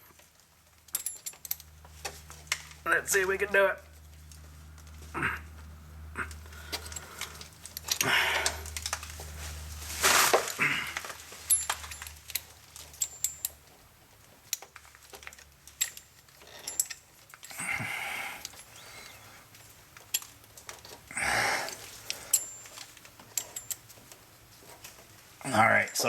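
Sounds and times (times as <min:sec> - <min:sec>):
metal clicks and rattles: 0:00.0 - 0:02.8, 0:11.0 - 0:17.6, 0:19.5 - 0:21.1, 0:21.7 - 0:25.1.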